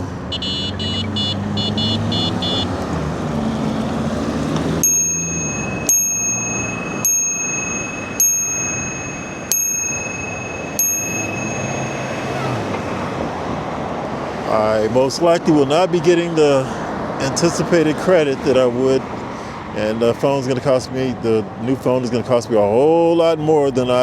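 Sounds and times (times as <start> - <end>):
high beeps: 0.3 - 2.7, 4.9 - 12.7
bell ringing: 4.8 - 13.0.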